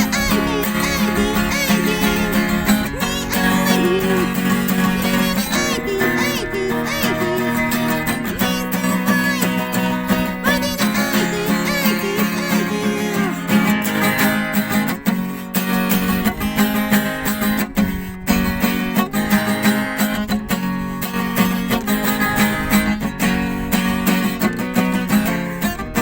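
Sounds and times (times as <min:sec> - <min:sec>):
man singing falsetto: 0:00.0 - 0:13.8
acoustic guitar strummed fast: 0:00.0 - 0:26.0.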